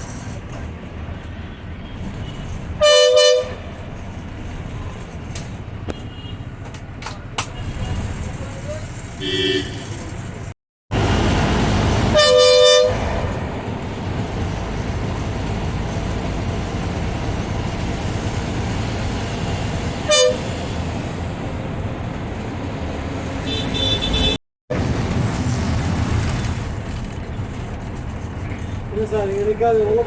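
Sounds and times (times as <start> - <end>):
bus engine and tyres rumbling: 0.0 - 30.0
bus horn: 2.2 - 3.7, 9.2 - 10.0, 12.0 - 13.2, 20.0 - 20.8, 23.3 - 24.4.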